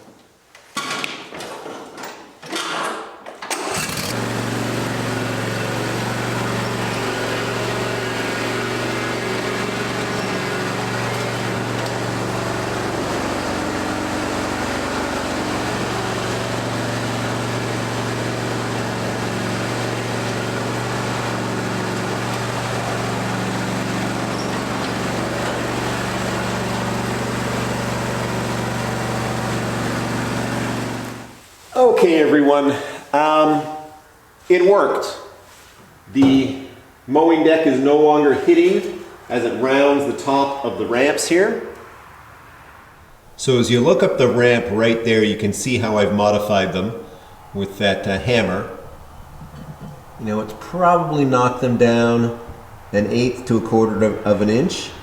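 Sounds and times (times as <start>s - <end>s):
lawn tractor engine running: 3.5s - 31.4s, 42.4s - 55.0s.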